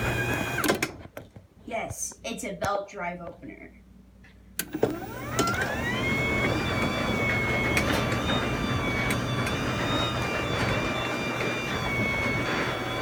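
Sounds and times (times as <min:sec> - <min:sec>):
garage door opener motor whine: 0:00.0 - 0:00.9, 0:04.6 - 0:13.0
garage door opener click: 0:00.0 - 0:01.0, 0:04.6 - 0:13.0.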